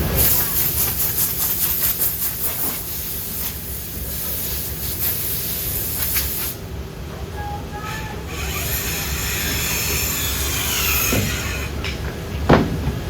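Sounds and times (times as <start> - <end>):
air hissing in pulses: 0.0 - 12.2
low machinery hum: 3.6 - 13.0.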